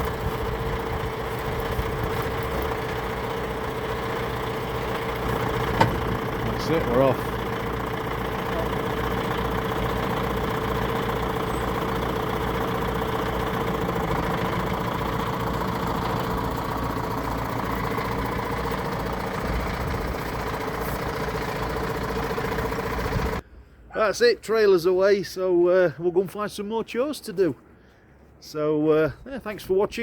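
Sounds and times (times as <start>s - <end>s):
tractor engine running: 0.0s - 23.4s.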